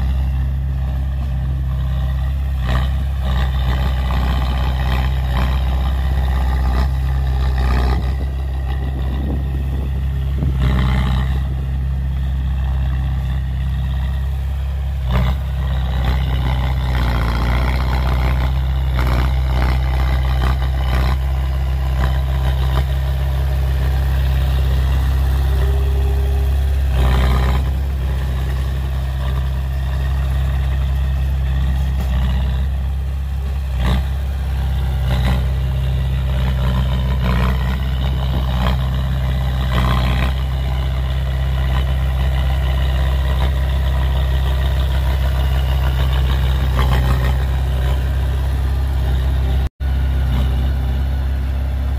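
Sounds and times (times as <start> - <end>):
heavy machinery engine drone: 0.0 - 51.9.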